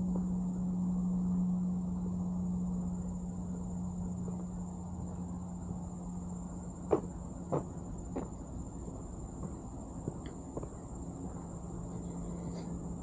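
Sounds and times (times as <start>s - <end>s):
high-pitched insect trill: 0.0s - 13.0s
low hum: 0.0s - 13.0s
sharp knocks: 6.9s - 8.4s.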